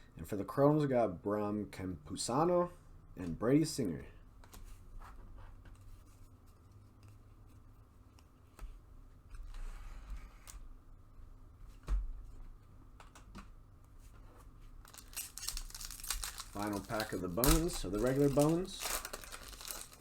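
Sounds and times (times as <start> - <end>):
card packs rustling: 14.8 - 20.0.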